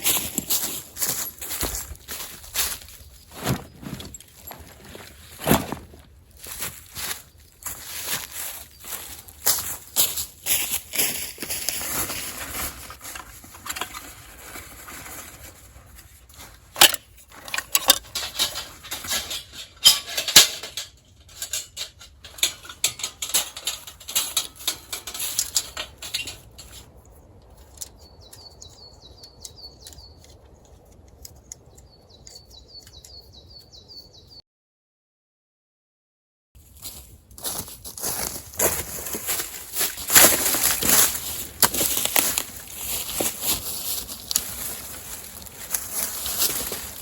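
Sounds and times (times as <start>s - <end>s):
camping gear rustling and clicking: 0.0s - 33.2s, 36.6s - 47.0s
small bird chirping: 27.1s - 34.4s.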